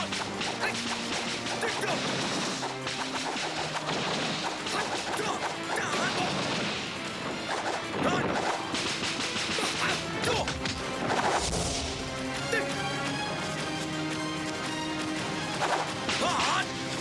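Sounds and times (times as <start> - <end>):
fight hits and crashes: 0.0 - 12.2
orchestral film music: 0.0 - 17.0.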